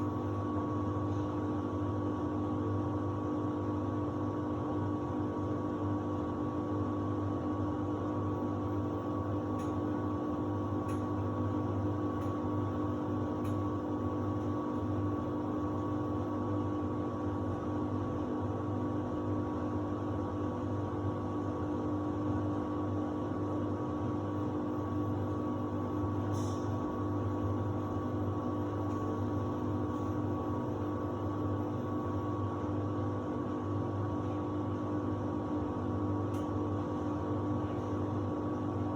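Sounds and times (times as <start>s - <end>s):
washer-dryer humming: 0.0s - 38.9s.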